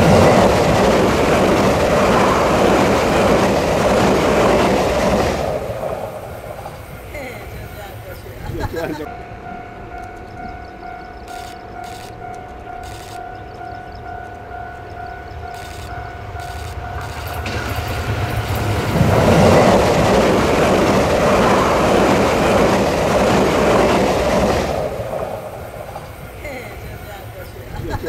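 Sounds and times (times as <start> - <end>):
train passing: 0.0 - 28.0
level crossing warning tone: 6.5 - 18.8.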